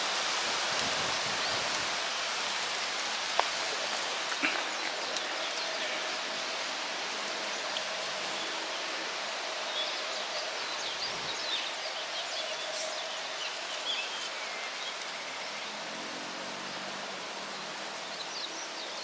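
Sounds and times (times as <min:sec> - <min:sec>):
wind rustling through trees: 0:00.0 - 0:19.0
small birds chirping: 0:00.8 - 0:15.6.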